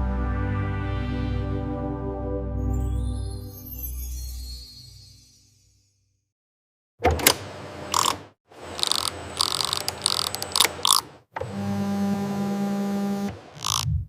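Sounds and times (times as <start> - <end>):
irregular ratcheting clicks: 7.9 - 11.1.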